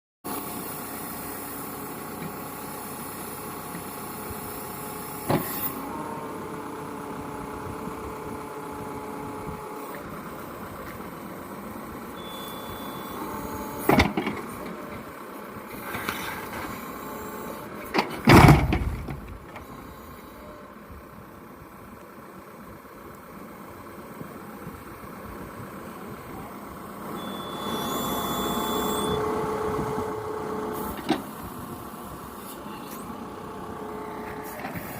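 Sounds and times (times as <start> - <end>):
excavator diesel engine running: 0.3 - 34.9.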